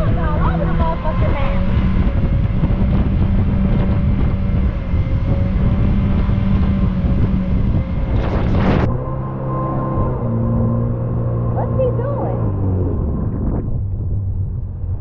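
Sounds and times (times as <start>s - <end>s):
wind and water rushing: 0.0s - 11.6s
jet engine running: 0.0s - 15.0s.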